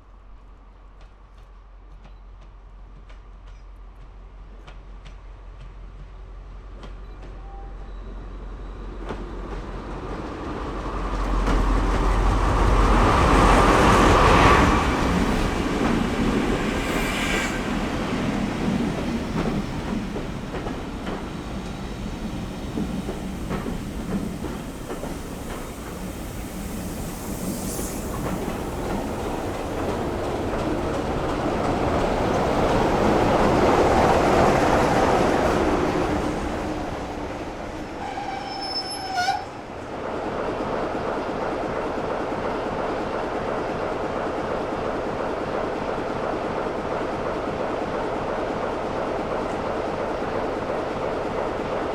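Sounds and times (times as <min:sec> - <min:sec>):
train wheels clattering over rails: 0:08.7 - 0:38.7.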